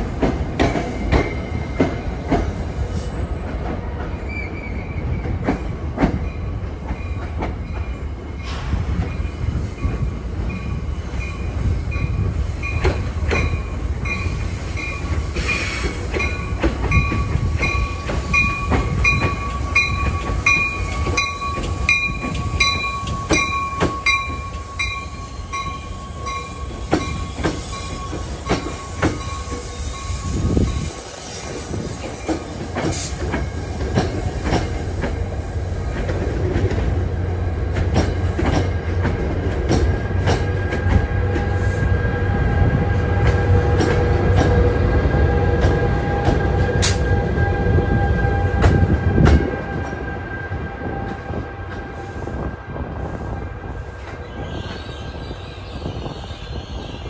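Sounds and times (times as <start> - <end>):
train wheels clicking over joints: 0.0 - 41.9, 42.8 - 47.2
pulsing high squeal: 17.8 - 32.5.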